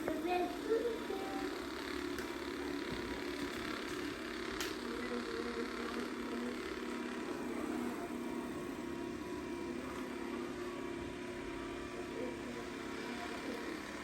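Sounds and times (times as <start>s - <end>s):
robot vacuum humming: 0.0s - 14.0s.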